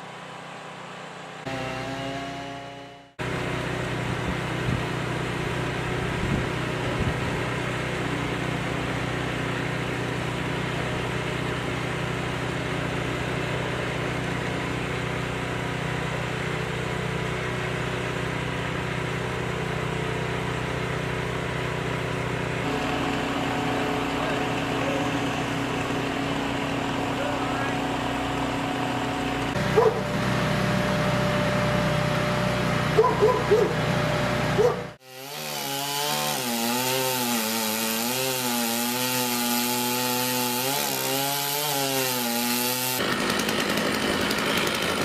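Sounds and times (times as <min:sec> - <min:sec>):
engine running steadily: 0:00.0 - 0:35.0.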